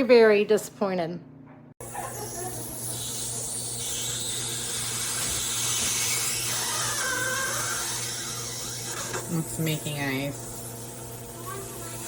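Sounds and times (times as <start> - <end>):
ice maker mechanical whir: 1.8 - 12.0.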